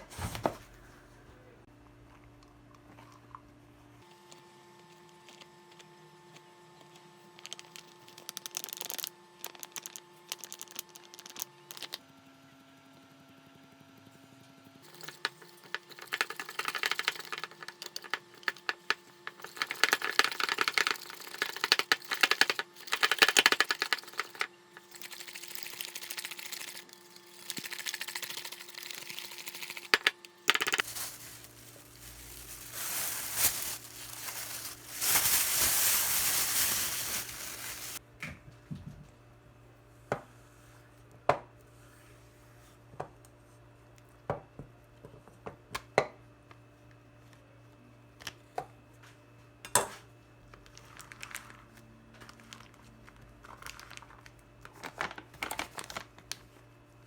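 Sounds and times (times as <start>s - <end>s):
objects clicking and rattling: 7.4s - 12.0s, 14.8s - 38.0s.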